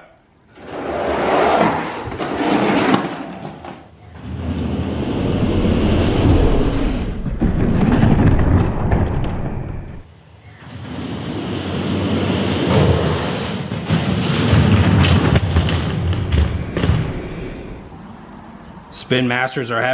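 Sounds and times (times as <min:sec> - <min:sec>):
toy trucks rolling rumble: 0:00.5 - 0:04.7.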